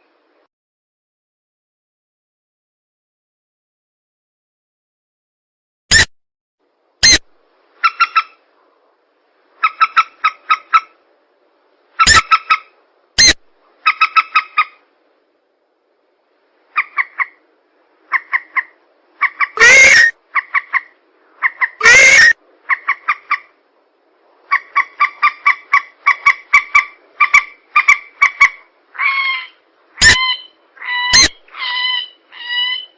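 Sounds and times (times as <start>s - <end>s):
loud harsh bird calls: 12.0s - 14.8s, 18.1s - 23.5s, 24.5s - 32.9s.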